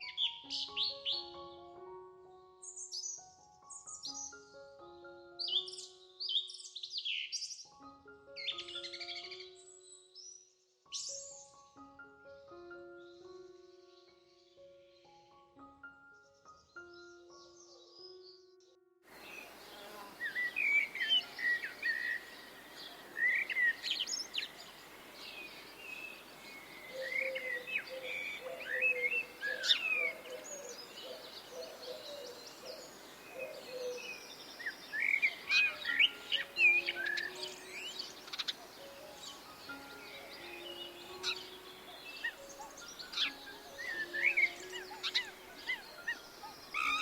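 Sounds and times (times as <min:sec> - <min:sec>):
steady background hiss: 0:19.1 - 0:47.0
wild birds chirping: 0:19.1 - 0:47.0.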